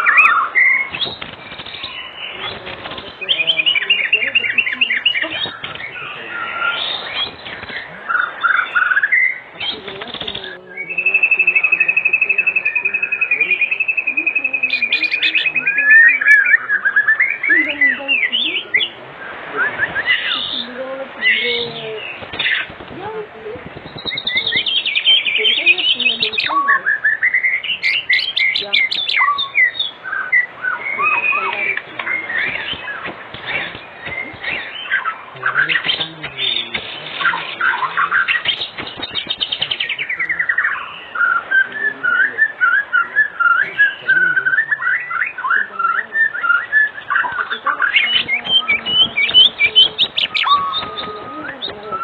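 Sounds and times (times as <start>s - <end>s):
bird singing whistled song: 0.0s - 52.0s.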